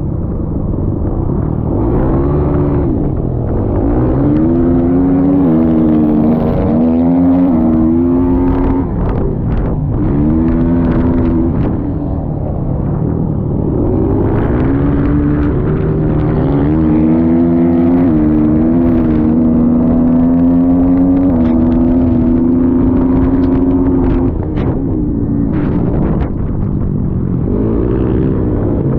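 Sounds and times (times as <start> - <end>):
dirt bike engine revving: 1.4 - 12.1, 12.8 - 24.8.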